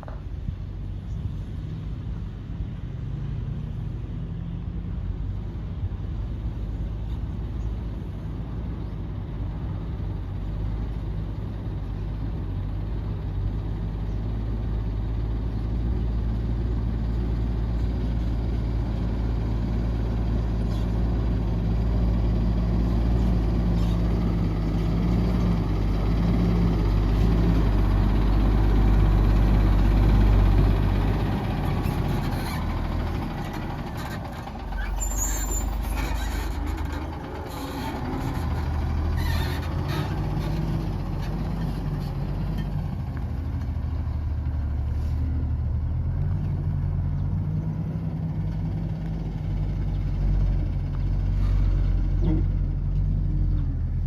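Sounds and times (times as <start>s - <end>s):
heavy diesel engine running: 4.6s - 54.0s.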